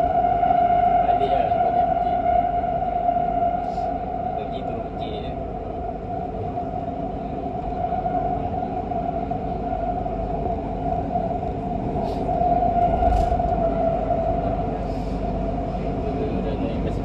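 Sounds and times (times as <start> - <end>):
wheels rumbling on rail: 11.1 - 13.9.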